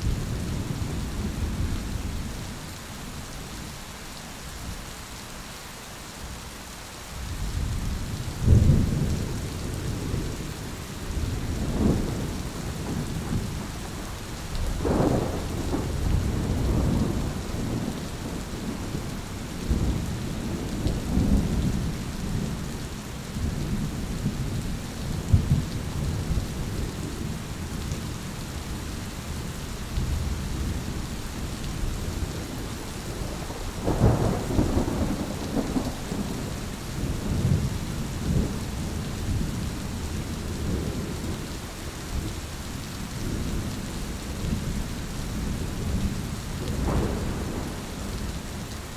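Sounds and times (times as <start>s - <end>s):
steady rain: 0.0s - 48.9s
thunder rumbling: 8.4s - 27.7s, 30.0s - 41.4s, 44.4s - 48.9s.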